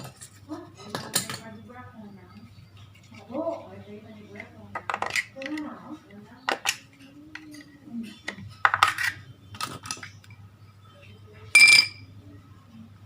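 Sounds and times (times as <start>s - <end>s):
low steady hum: 0.0s - 13.0s
metal parts and tools clinking: 4.3s - 5.9s, 6.5s - 10.4s, 11.5s - 12.0s
loud ringing metallic clink: 11.6s - 12.0s.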